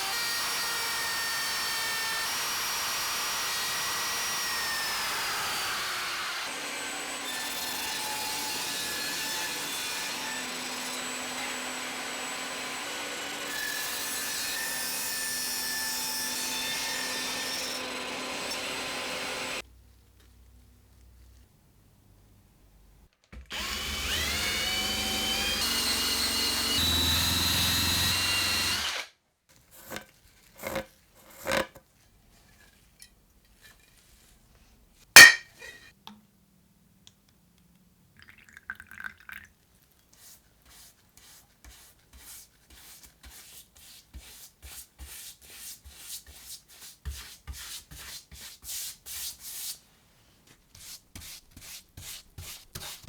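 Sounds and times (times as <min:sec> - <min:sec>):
small power tool whining: 0:23.5 - 0:29.1.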